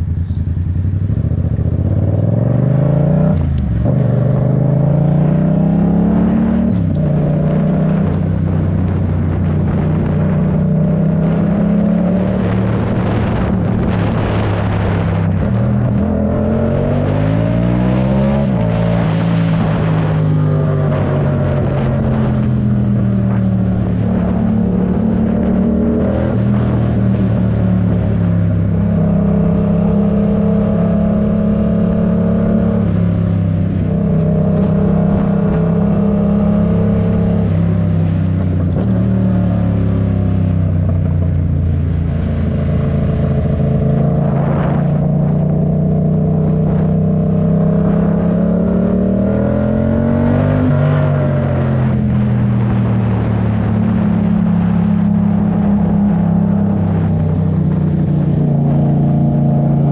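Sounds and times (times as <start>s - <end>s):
motorcycle engine running: 0.0s - 4.9s.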